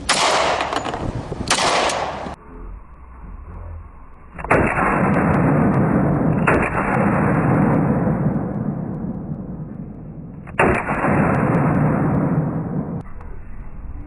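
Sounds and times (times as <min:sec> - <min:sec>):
pistol shots: 0:00.0 - 0:02.4, 0:04.4 - 0:09.1, 0:10.5 - 0:13.0.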